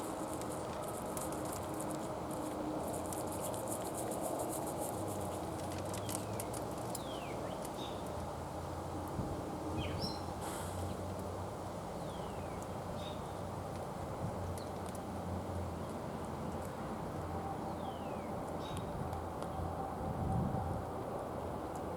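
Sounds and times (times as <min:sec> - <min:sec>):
fine crackling ticks: 0:00.0 - 0:08.3
low background noise: 0:00.0 - 0:21.9.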